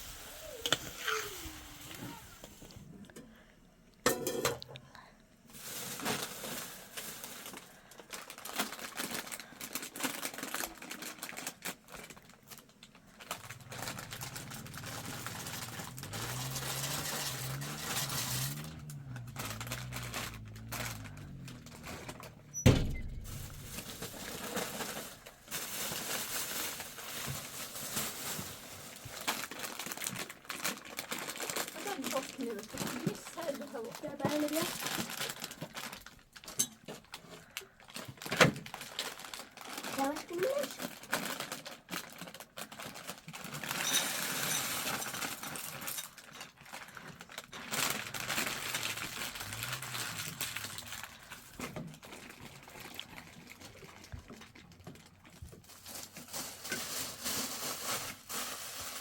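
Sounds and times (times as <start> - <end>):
rustling and crinkling handling: 5.5 - 59.0
low wavering hum: 13.4 - 24.1.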